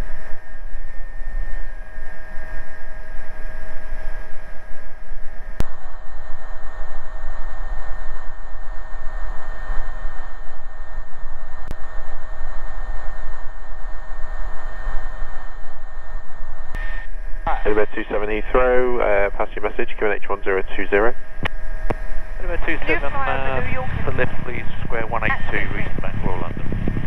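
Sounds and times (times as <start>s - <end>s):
helicopter cabin noise: 16.7s - 27.0s.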